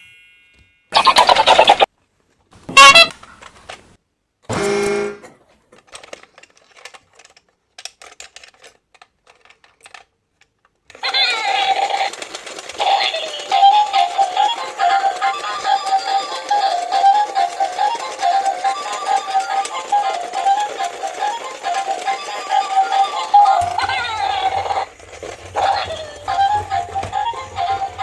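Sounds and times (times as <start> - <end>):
honk-like horn tone: 2.7 - 3.2, 4.5 - 5.3.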